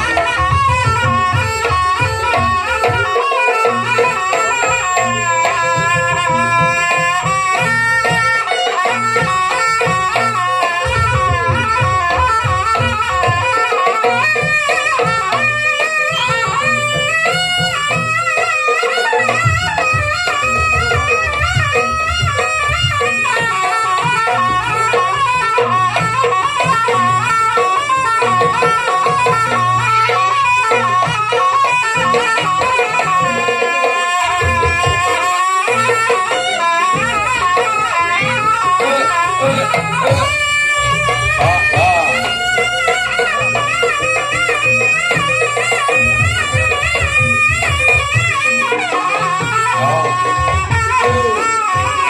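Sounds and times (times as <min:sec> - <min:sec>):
hand drum strokes: 0:00.0 - 0:52.0
reedy melody: 0:00.0 - 0:52.0.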